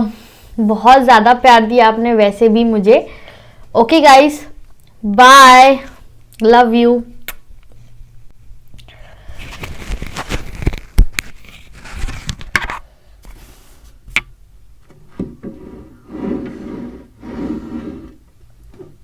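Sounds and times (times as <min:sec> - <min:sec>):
soft scraping and rubbing: 0:15.4 - 0:19.0.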